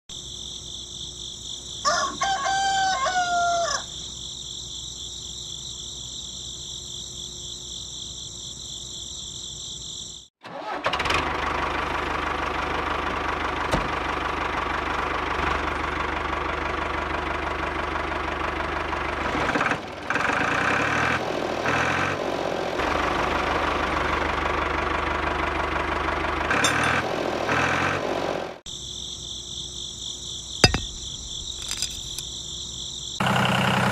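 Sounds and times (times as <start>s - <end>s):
insects chorus: 0.1s - 10.4s, 28.6s - 33.9s
rooster crowing: 1.8s - 4.0s
straw blower running: 33.2s - 33.9s.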